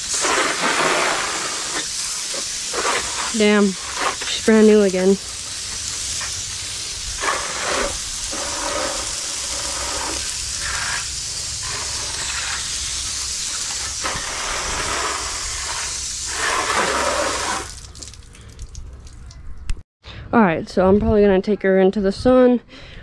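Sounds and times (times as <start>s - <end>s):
water jet spraying: 0.0s - 18.2s.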